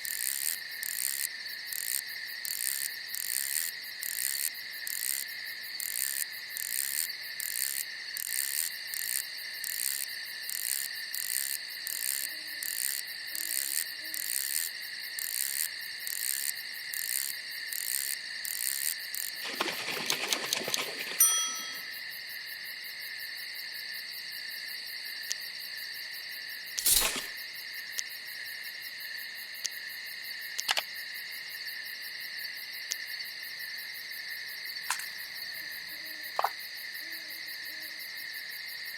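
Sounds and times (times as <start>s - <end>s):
crickets chirping: 0.0s - 38.9s
brief ringing ding: 21.2s - 21.9s.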